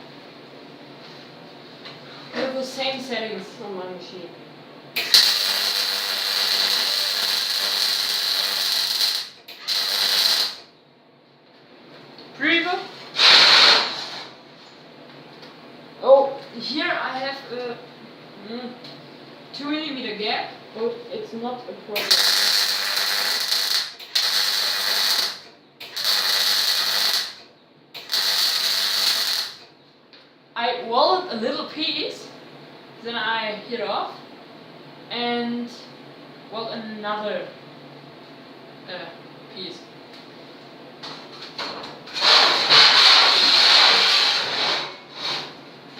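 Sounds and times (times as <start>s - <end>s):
welding arc crackling: 5.0s - 10.7s, 22.0s - 29.7s.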